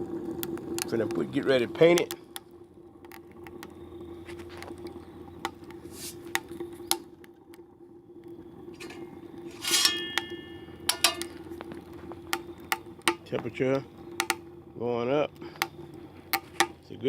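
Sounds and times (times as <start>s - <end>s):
heater burning with low hum: 0.0s - 17.0s
ticks and crackles: 0.0s - 17.0s
metallic clatter: 8.8s - 11.4s.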